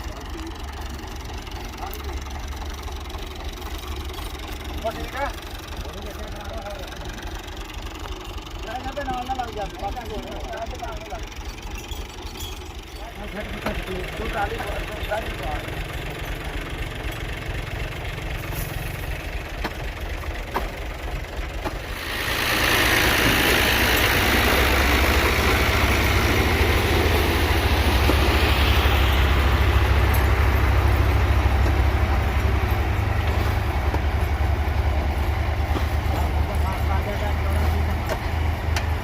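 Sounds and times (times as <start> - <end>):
tractor engine rumble: 0.0 - 39.0
thresher rushing noise: 21.7 - 33.7.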